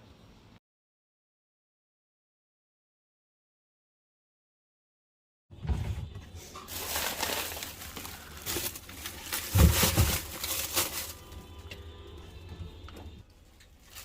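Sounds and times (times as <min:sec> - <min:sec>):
fridge low hum: 0:05.5 - 0:14.0
packets rustling and crinkling: 0:06.6 - 0:11.6, 0:13.8 - 0:14.0.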